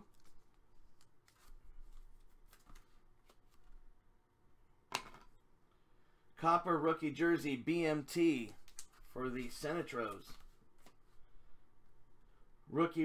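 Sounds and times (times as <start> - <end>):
trading cards rustling: 0.0 - 3.8, 8.1 - 11.2.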